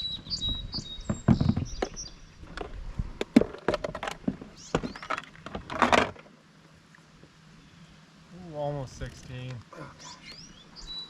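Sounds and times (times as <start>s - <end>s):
bird chirping: 0.0s - 2.4s, 4.6s - 5.2s, 10.0s - 11.0s
hard objects knocking: 1.1s - 2.0s.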